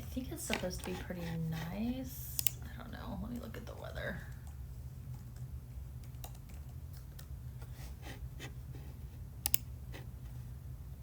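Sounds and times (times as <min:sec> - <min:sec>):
steady low hum: 0:00.0 - 0:11.0
keyboard typing clicks: 0:04.4 - 0:07.3.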